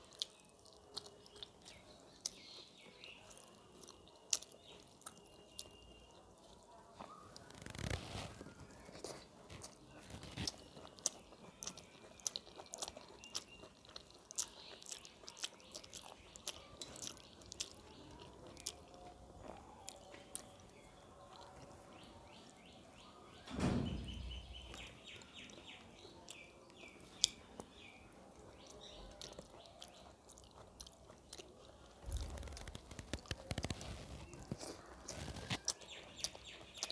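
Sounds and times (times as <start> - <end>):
chewing crisp fried food: 0.0 - 23.5, 24.7 - 36.9
loud thump: 23.5 - 24.5.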